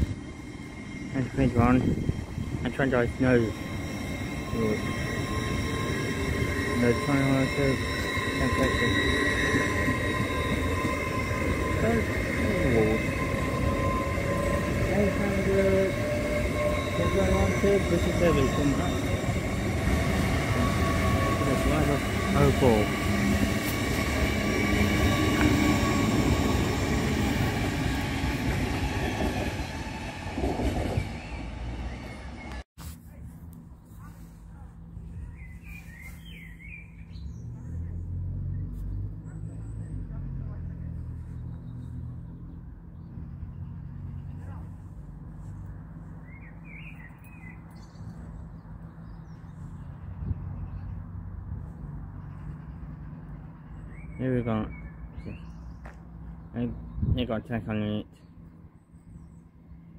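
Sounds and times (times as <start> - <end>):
train whine: 0.0 - 32.7
wheels rumbling on rails: 0.0 - 59.9
small bird twittering: 35.2 - 37.8.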